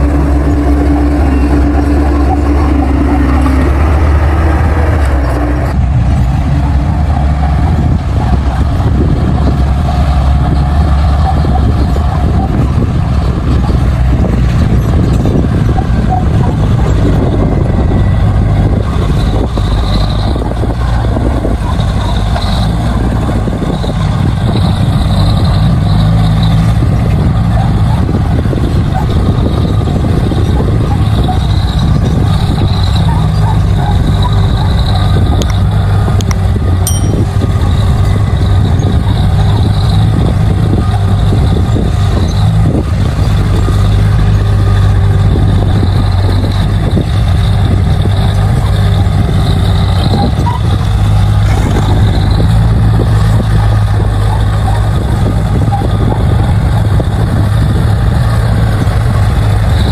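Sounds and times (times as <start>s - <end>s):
high squeal: 0.0s - 5.6s
bulldozer diesel engine: 0.0s - 59.9s.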